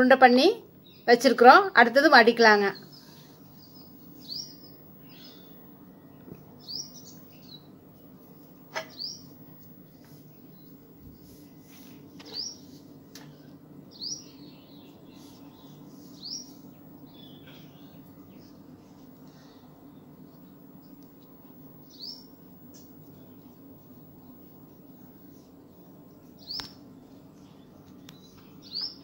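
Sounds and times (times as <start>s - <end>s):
faint low steady hum: 0.0s - 29.0s
bird chirping: 2.6s - 7.7s, 8.7s - 9.4s, 13.9s - 18.5s, 21.8s - 23.5s.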